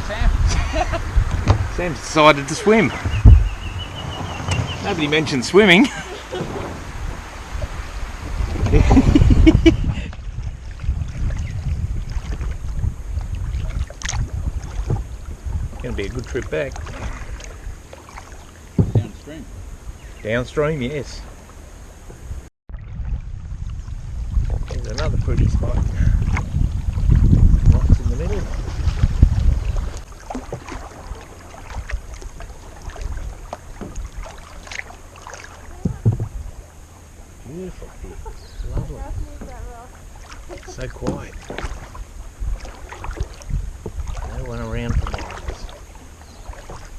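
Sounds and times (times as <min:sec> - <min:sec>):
paddle splashes and knocks: 0:00.0 - 0:19.8, 0:20.8 - 0:46.9
wind buffeting microphone: 0:00.0 - 0:46.9
light water clicks: 0:12.1 - 0:15.1.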